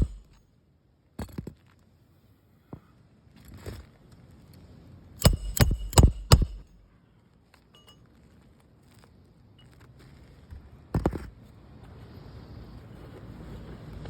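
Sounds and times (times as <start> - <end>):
sharp metallic clinks: 0.0 - 0.4, 5.2 - 6.9, 7.8 - 8.0.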